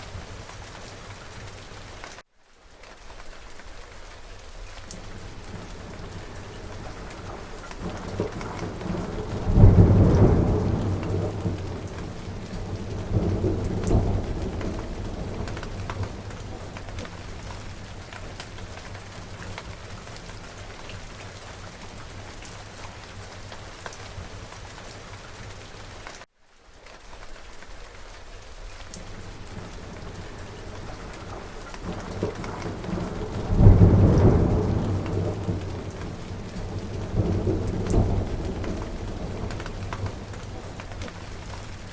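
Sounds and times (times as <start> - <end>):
heavy rain: 0.0 - 41.9
thunder rumbling: 5.0 - 24.5, 29.0 - 41.9.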